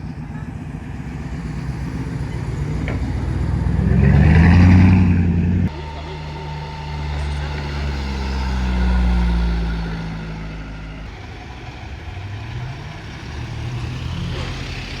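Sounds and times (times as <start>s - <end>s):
car engine pulling away: 0.0s - 15.0s.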